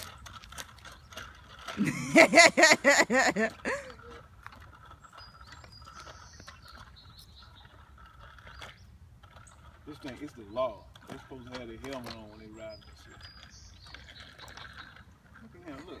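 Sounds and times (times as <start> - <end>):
person laughing: 1.8 - 4.2.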